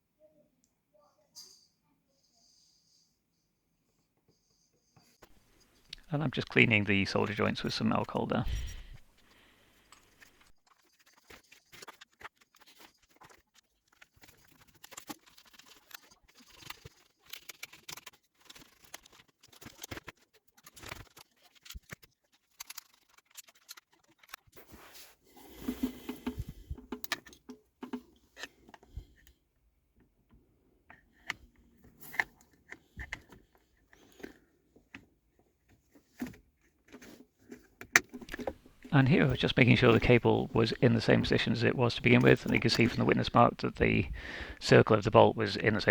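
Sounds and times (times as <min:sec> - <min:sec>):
small parts clicking and scraping: 0:08.4 - 0:24.6.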